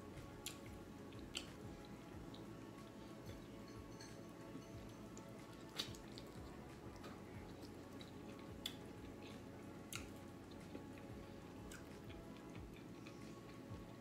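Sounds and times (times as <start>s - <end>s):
wet chewing and squishing: 0.3s - 2.5s, 5.2s - 14.0s.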